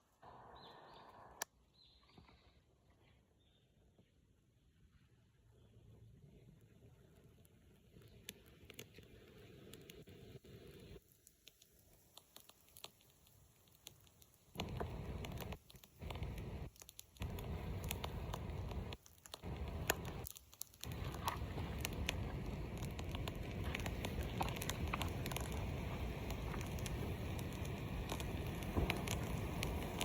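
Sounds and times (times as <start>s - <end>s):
wood fire crackling and popping: 7.0s - 30.0s
fire rushing noise: 14.5s - 30.0s.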